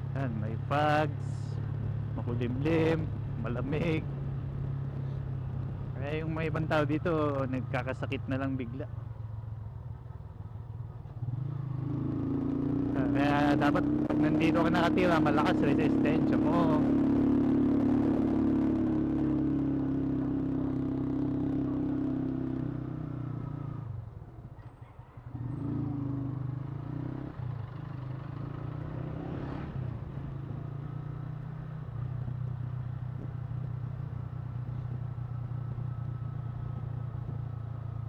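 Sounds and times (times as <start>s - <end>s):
motorcycle engine running: 8.9s - 38.0s.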